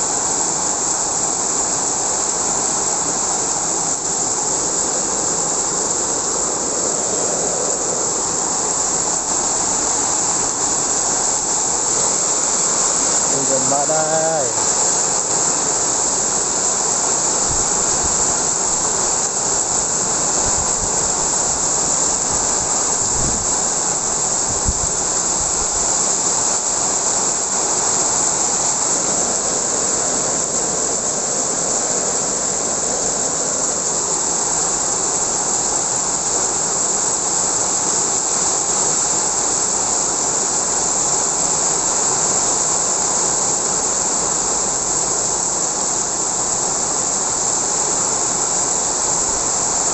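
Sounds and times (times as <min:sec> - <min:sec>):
heavy rain pouring: 0:00.0 - 0:49.9
low rumbling wind gusts: 0:17.3 - 0:26.0.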